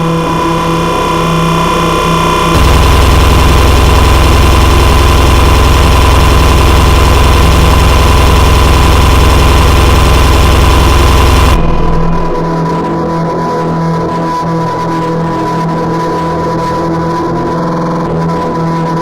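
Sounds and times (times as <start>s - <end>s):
steady high tone: 0.0s - 13.4s
pulsing low buzz: 0.0s - 13.8s
distorted noise music: 0.0s - 19.0s.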